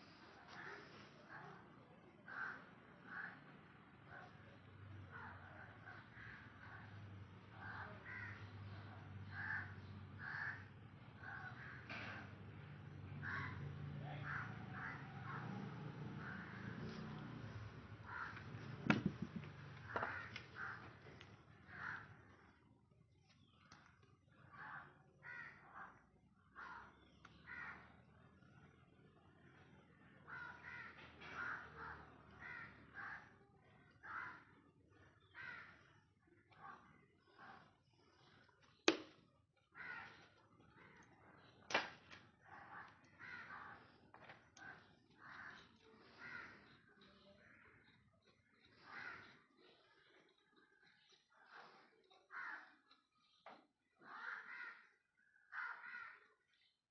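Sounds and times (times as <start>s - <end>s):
birds calling: 4.1s - 28.8s, 29.4s - 56.7s.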